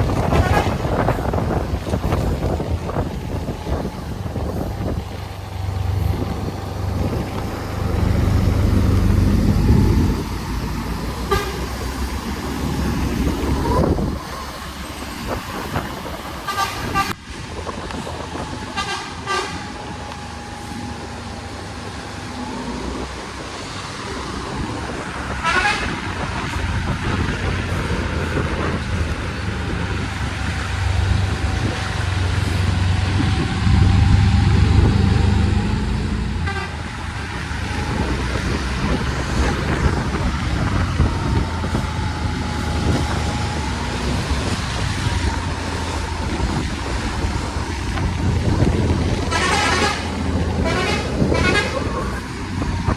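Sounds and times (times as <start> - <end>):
bus engine running: 0.0 - 52.9.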